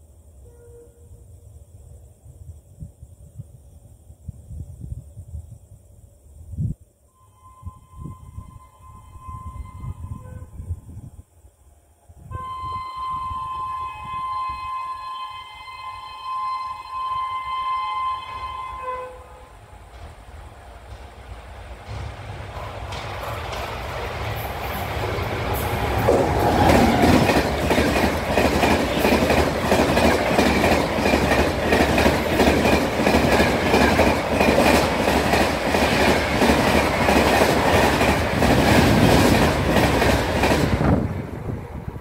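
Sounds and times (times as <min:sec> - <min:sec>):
passing train rushing: 0:07.3 - 0:42.0
train wheels clattering over rail joints: 0:19.8 - 0:41.2.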